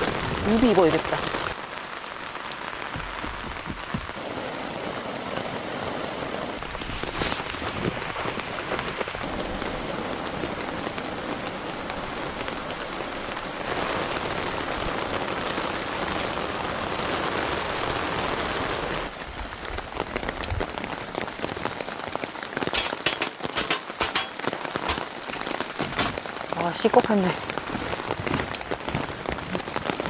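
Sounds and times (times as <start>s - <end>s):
heavy rain: 0.0s - 30.0s
sharp drips and taps: 22.6s - 27.2s.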